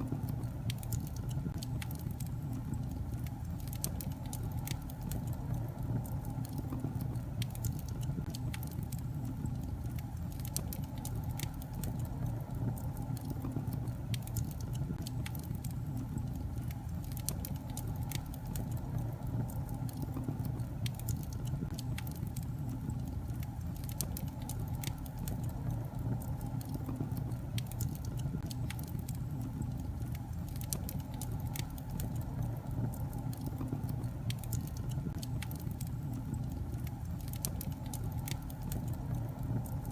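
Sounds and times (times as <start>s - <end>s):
fire flames rumbling: 0.0s - 39.9s
logs crackling and popping: 0.0s - 39.9s.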